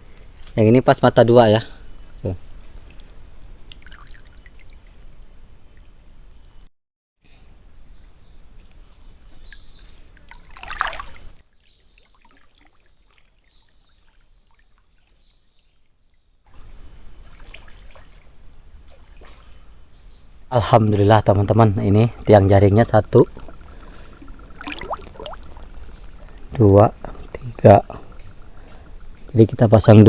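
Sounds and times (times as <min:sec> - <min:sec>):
river water trickling and splashing: 0:01.9 - 0:06.4, 0:08.6 - 0:20.5, 0:22.8 - 0:30.0
high-pitched insect drone: 0:20.5 - 0:30.0.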